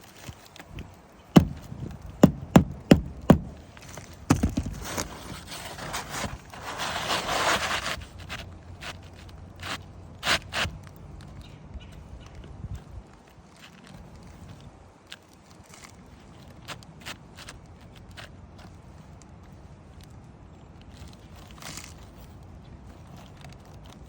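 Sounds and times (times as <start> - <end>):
knocks on shingle roof: 1.4 - 5.1
scraping on roof: 1.4 - 8.3.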